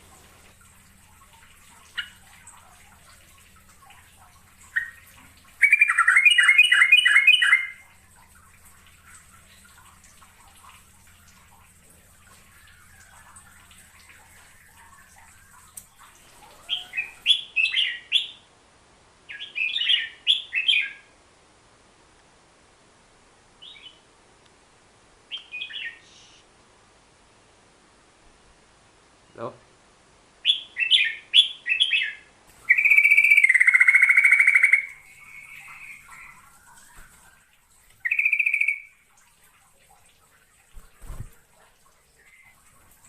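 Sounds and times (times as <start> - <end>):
faint steady hum: 0.0 - 43.0
bird singing chattering notes: 32.7 - 36.9.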